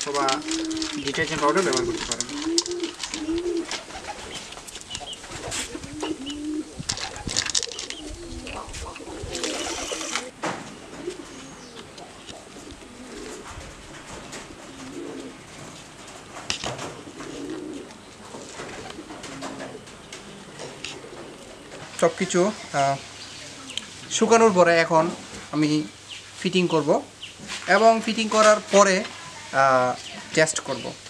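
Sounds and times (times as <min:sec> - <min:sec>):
pigeons cooing: 0:00.0 - 0:24.1.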